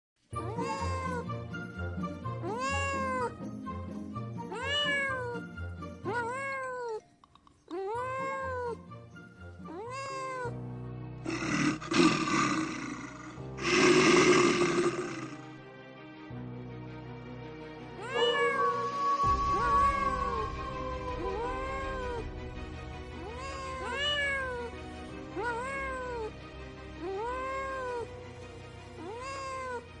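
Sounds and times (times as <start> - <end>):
background music: 0.2 - 30.0
cat meowing: 0.4 - 1.3, 2.4 - 3.4, 4.5 - 7.0, 7.7 - 8.8, 9.6 - 10.6, 18.0 - 22.3, 23.2 - 26.4, 27.0 - 28.1, 29.0 - 30.0
harsh rough animal sound: 11.3 - 15.5.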